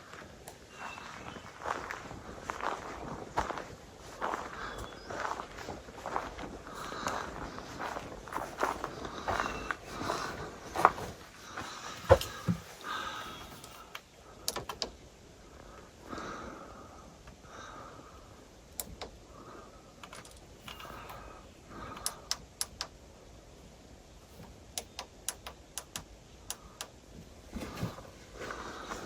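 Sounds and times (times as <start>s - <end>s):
soft rustling: 0.0s - 13.9s.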